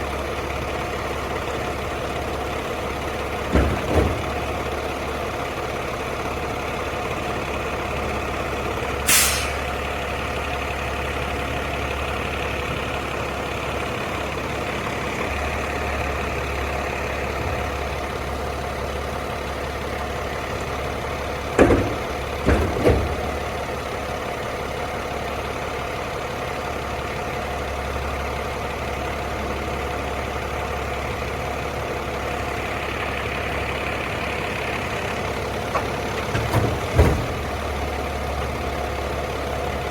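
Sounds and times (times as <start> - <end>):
garbage truck engine idling: 0.0 - 39.9
heavy knocks: 3.3 - 4.9, 21.4 - 23.6, 35.7 - 37.9
air hiss: 9.1 - 9.7.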